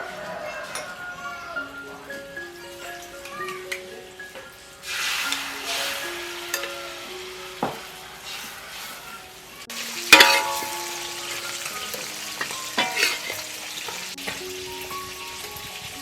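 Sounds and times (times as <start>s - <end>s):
food sizzling in a pan: 0.1s - 16.0s
utensil clatter: 10.1s - 11.0s, 11.7s - 14.4s
utensil knocking against pan: 10.2s - 14.4s.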